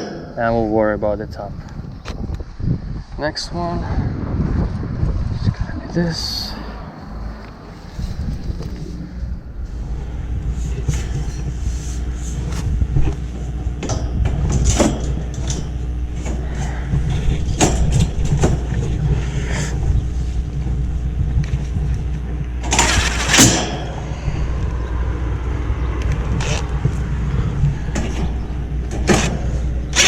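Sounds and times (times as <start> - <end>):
metal panels clicking and knocking: 0.0 - 0.5, 13.8 - 18.9, 22.6 - 24.1, 27.6 - 30.0
low rumble: 0.0 - 30.0
metal scraping: 6.5 - 19.8, 22.6 - 24.9, 26.3 - 30.0.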